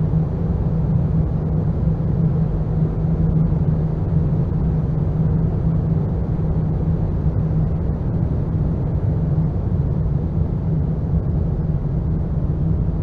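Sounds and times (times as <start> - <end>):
low ambient drone rumble: 0.0 - 13.0.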